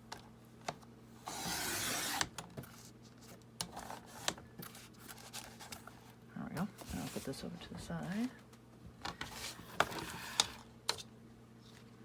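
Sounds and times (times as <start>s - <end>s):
cutter scratching through cardboard: 1.3s - 2.3s
cardboard being handled: 6.7s - 8.3s.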